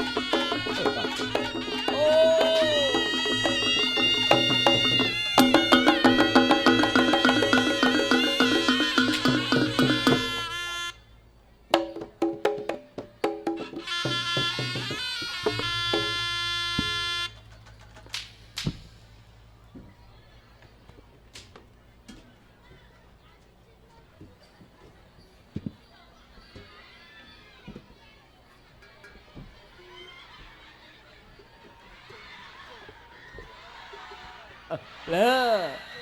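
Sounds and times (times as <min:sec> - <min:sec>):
ensemble music with percussion: 0:00.0 - 0:10.9.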